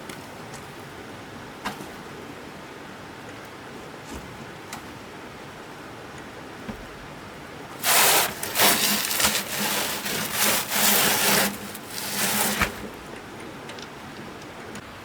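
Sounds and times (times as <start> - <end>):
rough scraping strokes: 7.8 - 13.1.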